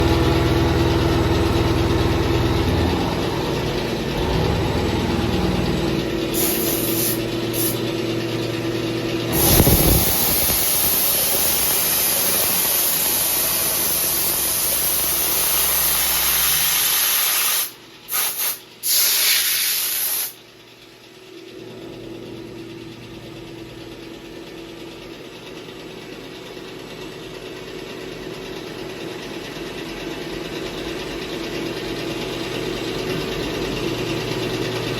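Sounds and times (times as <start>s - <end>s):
milling machine humming: 0.0s - 16.9s
loud hiss: 6.3s - 7.8s, 9.3s - 20.4s.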